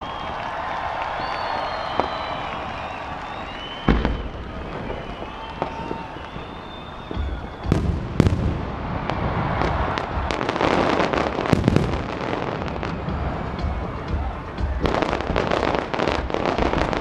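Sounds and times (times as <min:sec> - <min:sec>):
firework crackling: 0:00.0 - 0:17.0
thin firework whistle: 0:00.0 - 0:17.0
firework shell bangs: 0:01.7 - 0:08.6.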